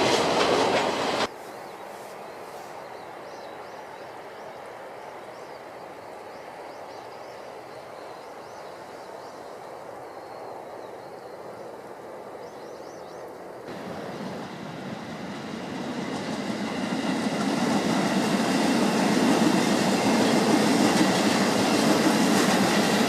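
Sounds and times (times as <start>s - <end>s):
outdoor background noise: 0.0s - 23.0s
small bird chirping: 12.4s - 13.4s.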